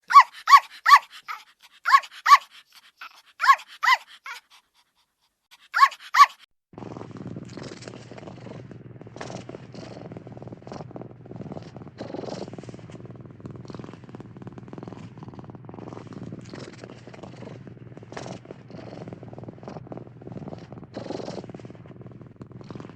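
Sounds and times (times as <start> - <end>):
dog barking: 0.0 - 4.4, 5.6 - 6.5.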